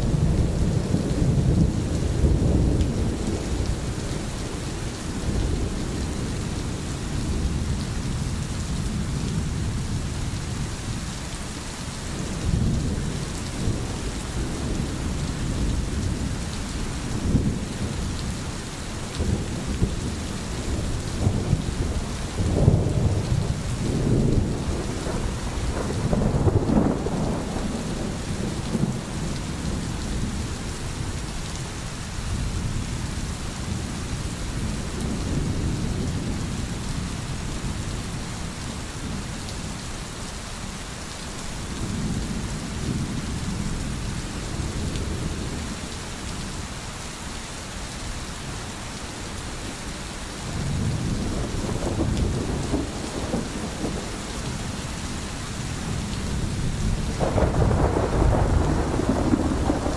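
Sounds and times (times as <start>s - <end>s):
steady rain hiss: 0.0s - 59.9s
distant thunder rumbling: 12.2s - 31.1s, 50.5s - 59.9s.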